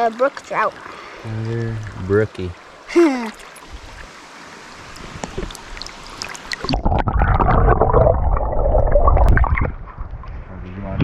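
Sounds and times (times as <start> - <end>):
river water running: 0.0 - 8.1
underwater rumbling and gurgling: 1.5 - 2.4, 4.8 - 11.0.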